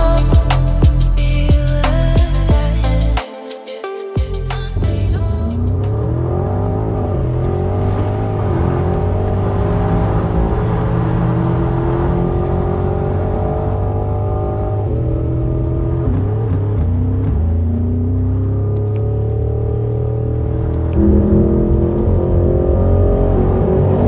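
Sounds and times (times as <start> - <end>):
car engine accelerating hard: 5.5 - 24.0
gear upshift: 5.5 - 24.0.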